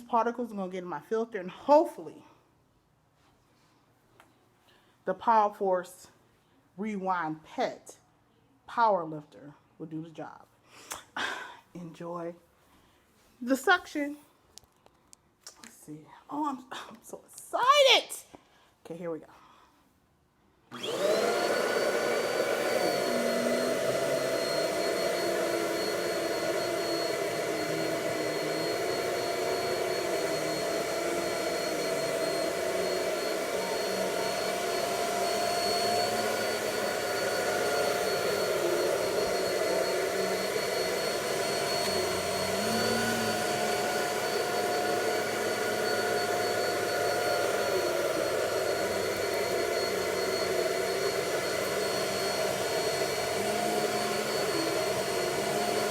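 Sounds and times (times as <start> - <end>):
vacuum cleaner running: 20.7 - 55.9.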